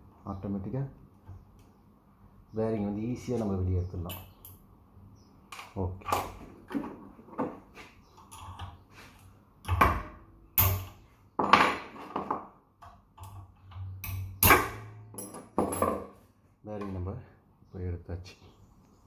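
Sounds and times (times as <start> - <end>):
spanner striking metal: 10.6 - 11.0, 13.2 - 16.1
tools clinking: 13.2 - 16.1.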